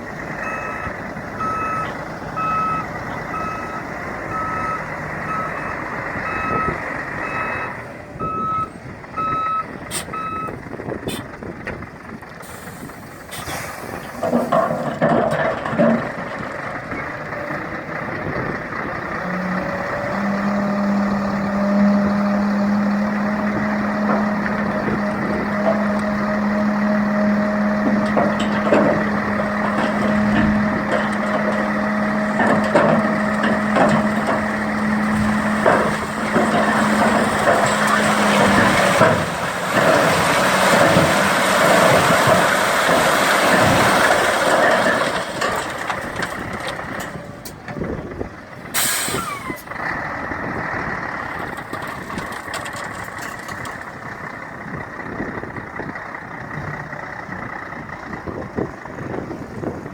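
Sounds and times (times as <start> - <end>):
truck tipper drive droning: 0.0 - 59.9
gravel sliding out: 22.8 - 47.1.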